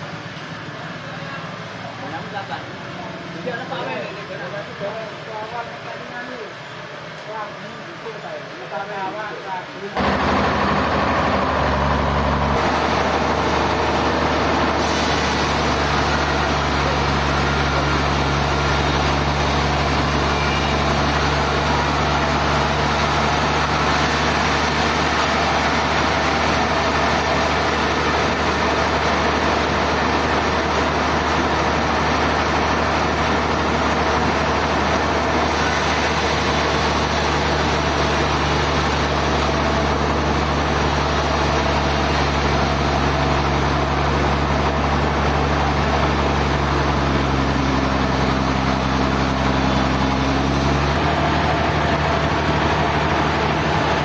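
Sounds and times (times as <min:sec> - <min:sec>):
low motor hum: 0:10.0 - 0:54.0
sawmill machinery hiss: 0:12.6 - 0:51.1.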